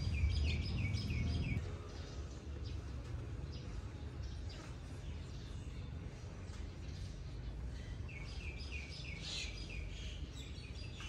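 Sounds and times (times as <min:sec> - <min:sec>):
low background rumble: 0:00.0 - 0:04.4
birds chirping: 0:00.0 - 0:11.0.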